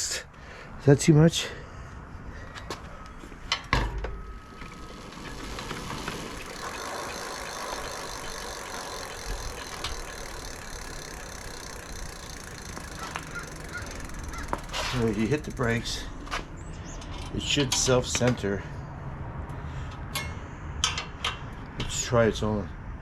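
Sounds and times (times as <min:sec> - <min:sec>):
bike wheel spinning with whir: 0:02.9 - 0:17.1
light rattle: 0:05.6 - 0:16.1.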